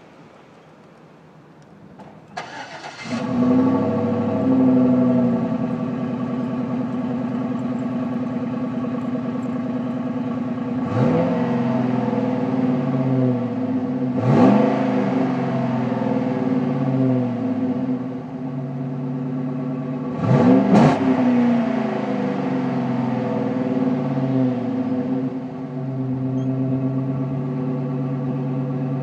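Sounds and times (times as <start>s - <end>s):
truck engine cranking: 0.1s - 12.1s
engine idling through loud exhaust: 2.0s - 29.0s
engine revving: 2.4s - 29.0s.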